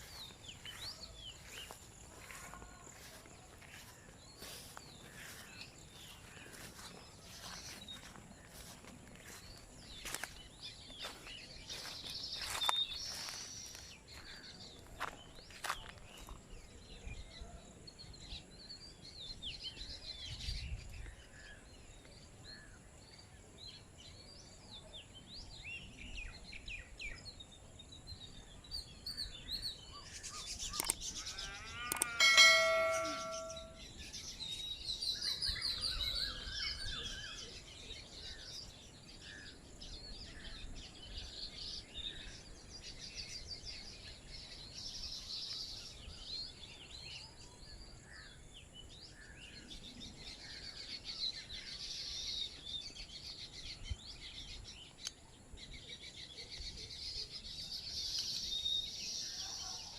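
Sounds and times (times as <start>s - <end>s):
birds chirping and trilling: 0.0s - 59.9s
clear ringing tone: 31.8s - 33.8s.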